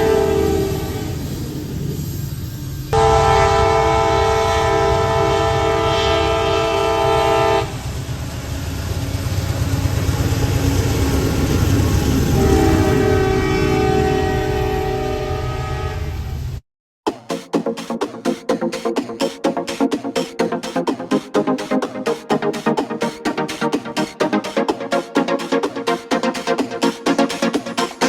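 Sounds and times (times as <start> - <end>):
locomotive air horn blast: 0.0 - 1.2, 3.0 - 7.8, 12.3 - 16.5.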